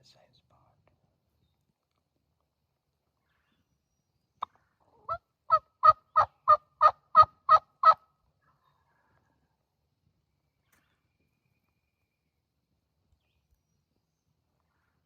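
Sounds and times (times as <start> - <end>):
turkey yelps: 5.0 - 8.0.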